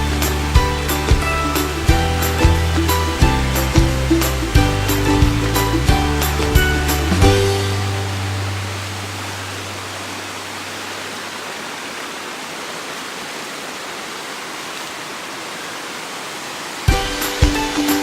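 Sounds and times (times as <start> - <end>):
music with sharp bass beats: 0.0 - 8.2, 16.9 - 18.0
music track: 0.0 - 9.9, 16.9 - 18.0
waterfall rushing: 0.0 - 18.0.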